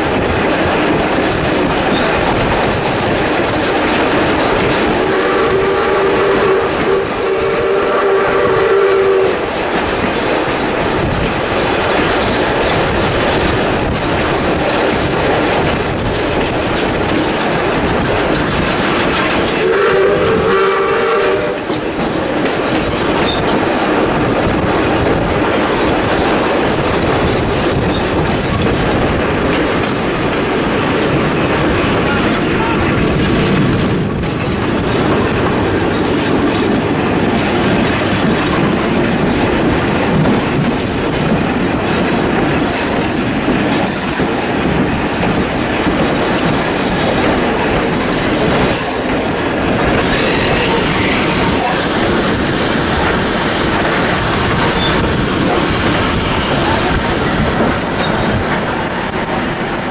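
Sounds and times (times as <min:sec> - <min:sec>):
wheels clickety-clack: 0:00.0 - 0:07.0, 0:08.6 - 0:59.9
train carriages rolling rumble: 0:00.0 - 0:59.9
high wheel squeals: 0:54.2 - 0:55.1, 0:56.6 - 0:59.9.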